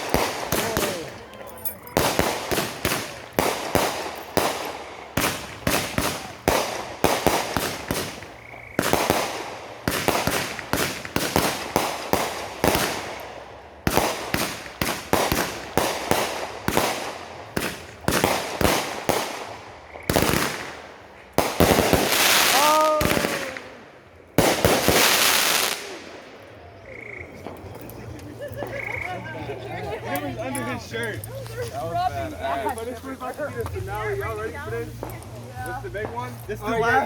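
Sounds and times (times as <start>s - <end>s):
fireworks banging: 0.0s - 26.5s.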